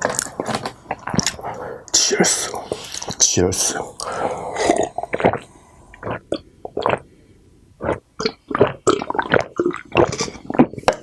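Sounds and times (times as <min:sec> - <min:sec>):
chewing and mouth smacks: 0:00.0 - 0:01.5.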